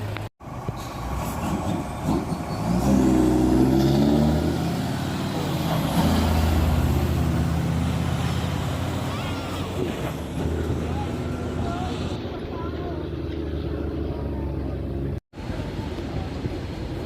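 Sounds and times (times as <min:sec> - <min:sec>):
diesel truck engine accelerating: 0:00.0 - 0:17.0.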